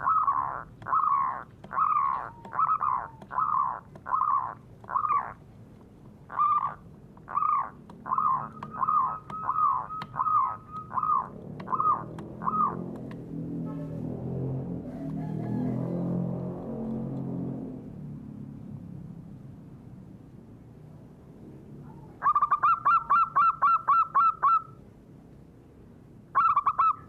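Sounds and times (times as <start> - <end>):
bird calling harsh notes: 0.0 - 5.4, 6.3 - 13.0, 21.9 - 24.8, 26.3 - 27.0.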